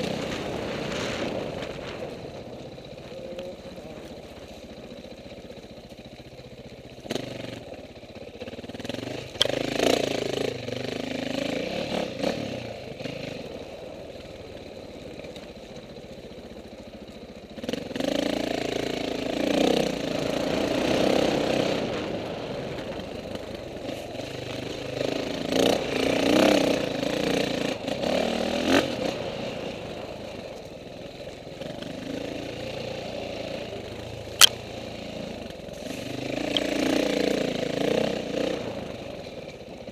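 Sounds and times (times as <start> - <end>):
dirt bike engines revving: 0.0 - 39.9
sharp click: 34.3 - 34.6.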